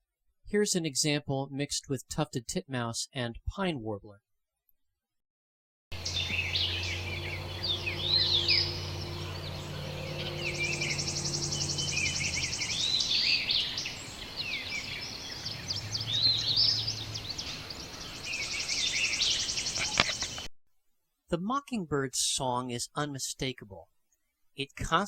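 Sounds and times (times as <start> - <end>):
bird calls: 6.0 - 20.5
bird fast steady trill: 6.0 - 20.5
bird soft slurred chirps: 6.0 - 20.5.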